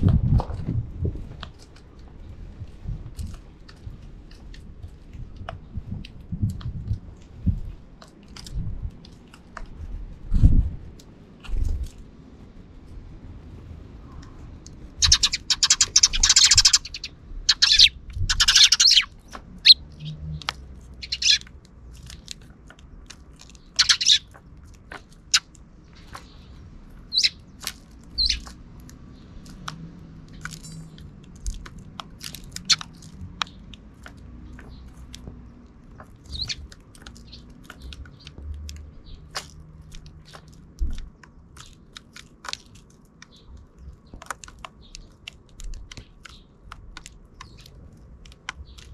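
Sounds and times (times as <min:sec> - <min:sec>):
sparrows chirping: 0:14.1 - 0:48.9
harsh chattering of sparrows: 0:14.9 - 0:22.6, 0:23.3 - 0:29.7, 0:30.3 - 0:42.2, 0:43.2 - 0:48.9.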